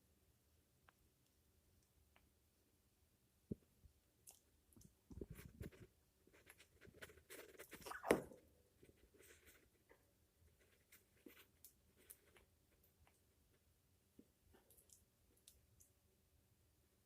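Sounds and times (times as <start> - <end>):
parrot preening rustles and clicks: 4.3 - 13.3.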